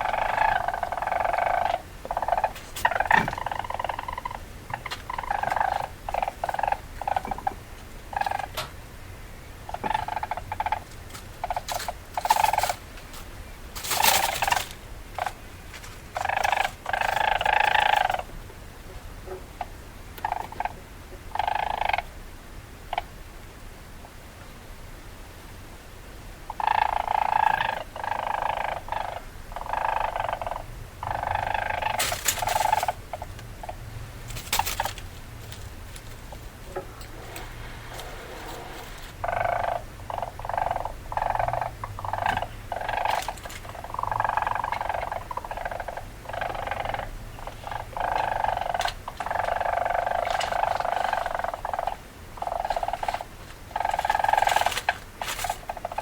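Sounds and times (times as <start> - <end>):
weasel chattering: 0.0 - 8.6, 9.6 - 12.8, 16.2 - 18.3, 26.5 - 56.0.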